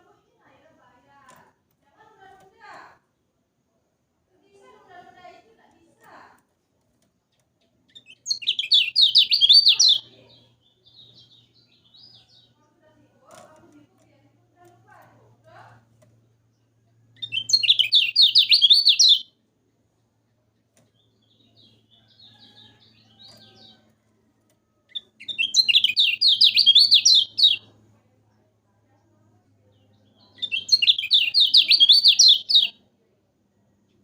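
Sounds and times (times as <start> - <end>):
bird chattering high notes: 8.3 - 10.0, 17.2 - 19.2, 25.2 - 27.6, 30.4 - 32.7.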